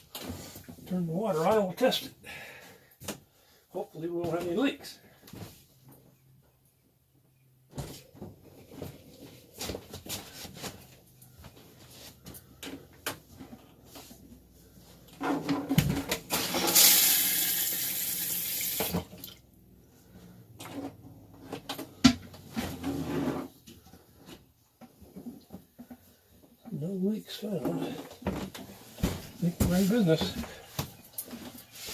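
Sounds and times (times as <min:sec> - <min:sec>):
toilet flushing: 0:16.3 - 0:19.1.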